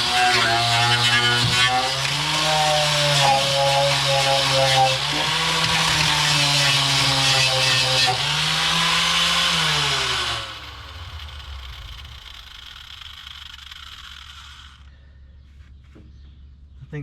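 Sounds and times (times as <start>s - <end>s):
angle grinder grinding steel: 0.0s - 14.9s.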